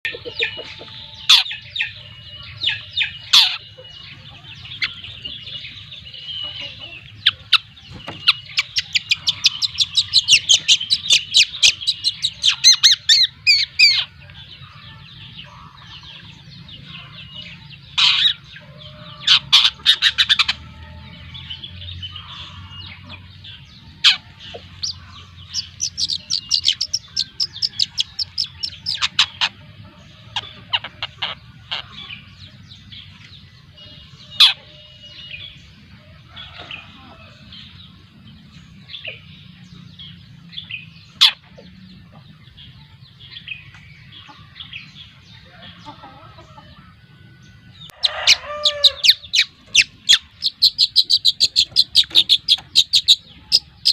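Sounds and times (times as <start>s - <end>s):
bird chattering notes: 0.0s - 14.2s, 24.0s - 32.3s, 49.0s - 53.9s.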